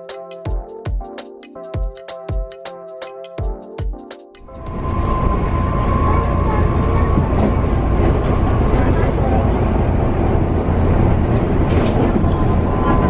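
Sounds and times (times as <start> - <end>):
vehicle interior rumble: 4.6 - 13.0
faint voices: 5.2 - 10.5.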